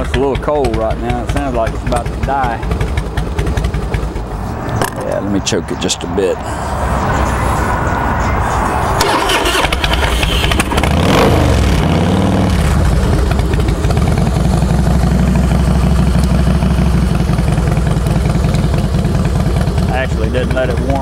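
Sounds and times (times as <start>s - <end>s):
motorcycle engine revving and idling: 0.0s - 5.9s, 9.0s - 21.0s.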